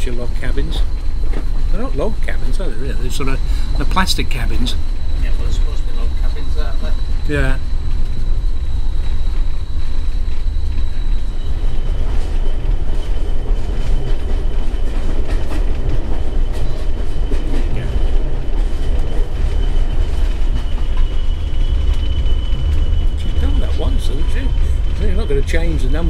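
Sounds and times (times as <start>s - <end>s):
train rumble inside carriage: 0.0s - 26.0s
wheels clicking over rail joints: 0.0s - 26.0s
thin high tone: 1.7s - 13.0s.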